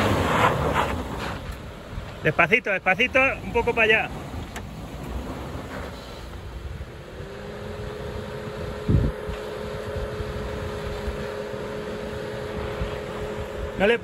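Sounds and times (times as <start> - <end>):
car engine running under load: 3.0 - 14.0.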